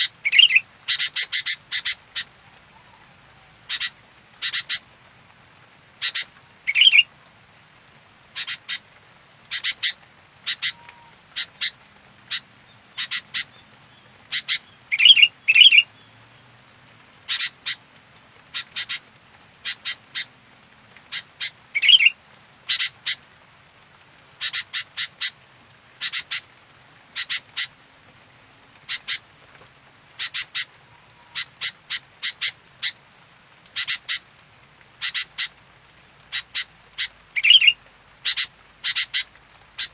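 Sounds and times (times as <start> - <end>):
bird calling sharp notes: 0.0 - 3.0, 6.0 - 7.1, 9.5 - 12.4, 14.3 - 15.9, 21.1 - 23.2, 36.3 - 39.9.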